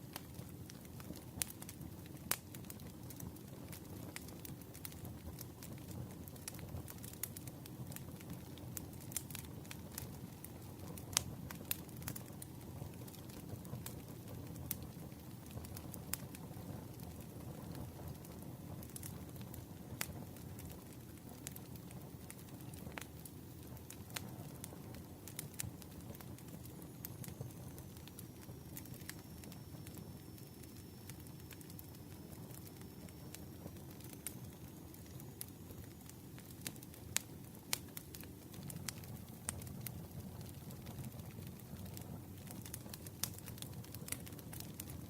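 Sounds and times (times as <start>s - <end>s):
campfire crackling: 0.0s - 45.0s
fire pops and snaps: 0.0s - 45.0s.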